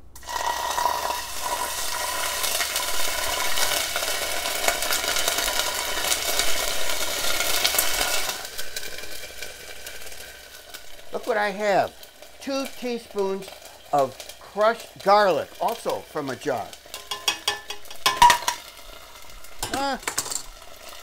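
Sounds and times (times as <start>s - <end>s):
paste sizzling in oil: 0.2s - 21.0s.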